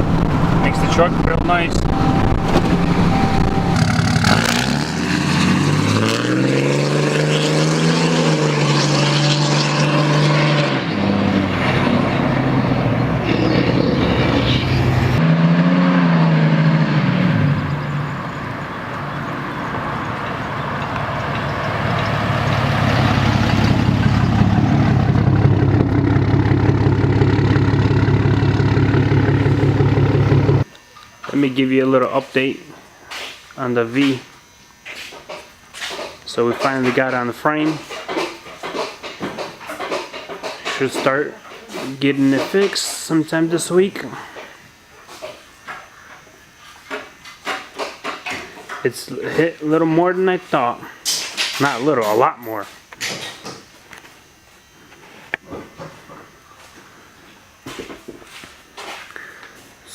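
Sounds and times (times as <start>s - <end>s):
pickup truck engine accelerating: 0.0s - 30.7s
road and tyre noise: 0.0s - 30.7s.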